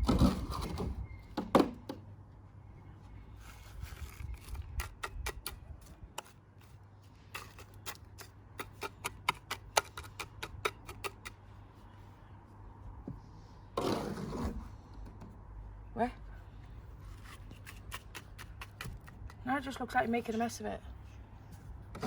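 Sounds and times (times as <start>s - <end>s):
tool tapping on cement: 7.4s - 11.4s, 17.6s - 19.4s.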